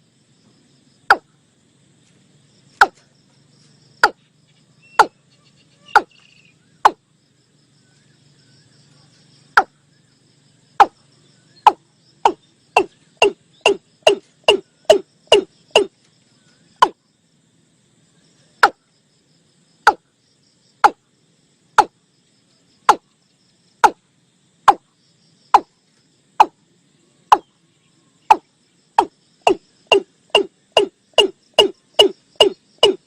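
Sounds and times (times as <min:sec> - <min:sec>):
bird calling hollow notes: 0:01.1 - 0:01.3, 0:04.0 - 0:04.2, 0:04.8 - 0:07.0, 0:09.5 - 0:09.8, 0:10.8 - 0:16.0, 0:19.9 - 0:20.1, 0:20.8 - 0:21.0, 0:25.5 - 0:25.7, 0:27.3 - 0:27.5, 0:28.2 - 0:33.0.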